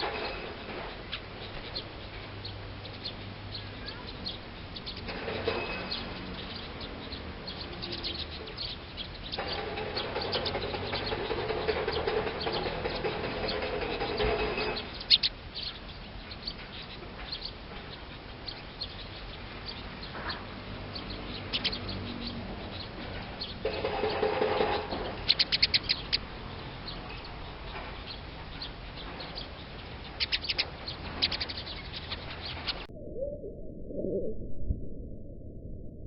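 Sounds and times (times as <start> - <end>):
small birds chirping: 0.0 - 32.9
low drone: 31.8 - 36.0.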